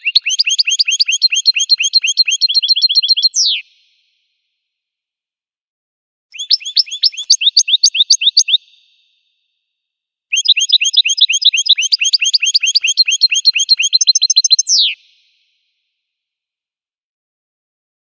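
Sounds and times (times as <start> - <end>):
goldfinch singing: 0.0 - 3.6, 6.4 - 8.6, 10.3 - 15.0.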